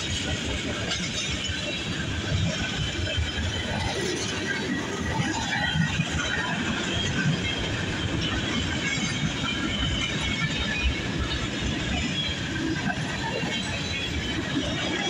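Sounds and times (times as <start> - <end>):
steel wheels rumbling on rails: 0.0 - 15.0
wheels clicking and clattering: 0.0 - 15.0.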